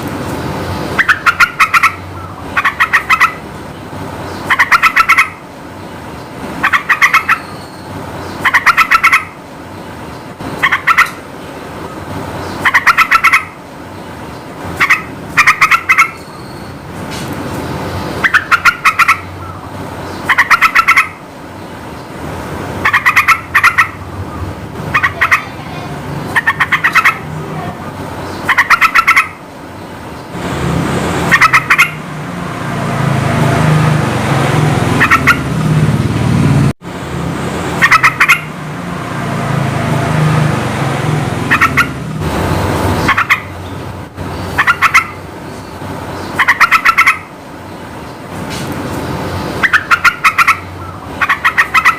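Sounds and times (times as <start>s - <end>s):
bird chattering song: 0.6s - 11.3s, 11.9s - 16.9s, 17.6s - 22.2s, 22.8s - 30.4s, 31.2s - 32.0s, 34.9s - 35.5s, 37.8s - 38.5s, 41.5s - 42.0s, 42.9s - 48.3s, 49.0s - 51.9s.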